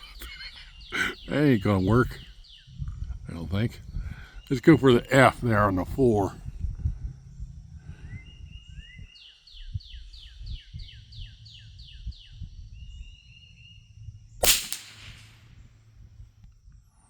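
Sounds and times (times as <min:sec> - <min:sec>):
songbird chirping: 0:00.0 - 0:06.4, 0:07.2 - 0:15.8
rifle shot: 0:14.4 - 0:15.5.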